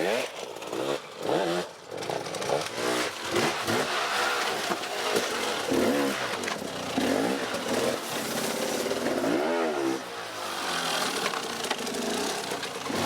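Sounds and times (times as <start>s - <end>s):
off-road motorcycle engine revving: 0.0s - 13.0s.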